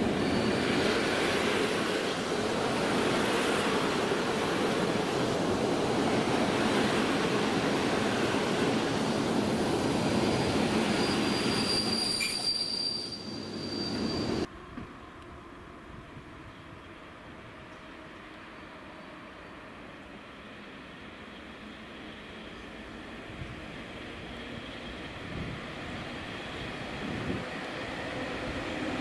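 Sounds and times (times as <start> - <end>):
high wheel squeal: 0.1 - 1.2, 10.4 - 14.5.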